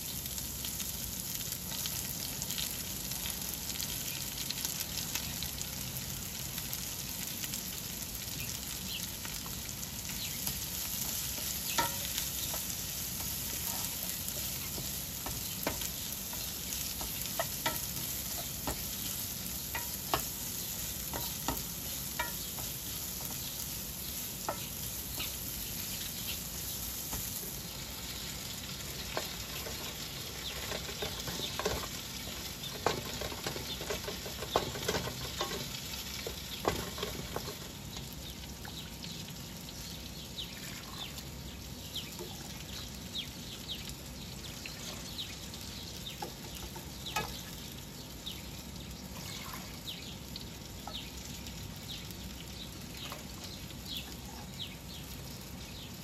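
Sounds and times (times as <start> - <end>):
carrots sizzling in hot oil: 0.0 - 56.0
spatula knocking and scraping pan: 11.0 - 23.6, 29.1 - 32.0, 32.7 - 37.6.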